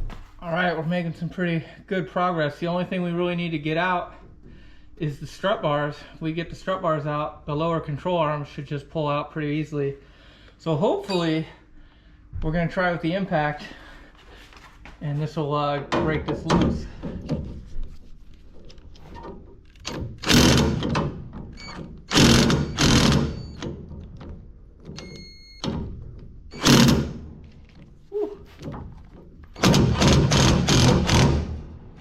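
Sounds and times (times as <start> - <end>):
impact wrench hammering: 19.9 - 23.9, 25.0 - 27.2, 29.6 - 31.8.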